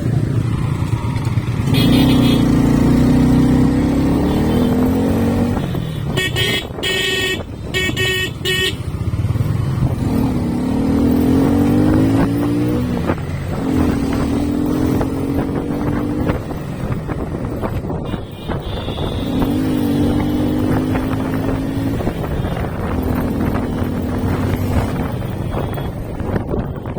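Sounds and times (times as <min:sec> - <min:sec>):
motorcycle engine running: 0:00.0 - 0:26.9
horn blasts: 0:01.6 - 0:02.5, 0:05.8 - 0:08.8.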